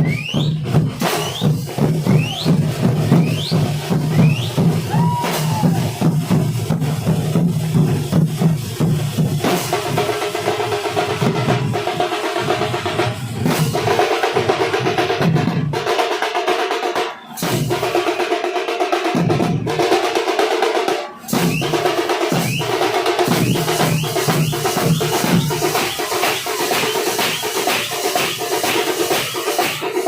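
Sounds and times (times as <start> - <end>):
drum ensemble drumming: 0.0 - 30.0.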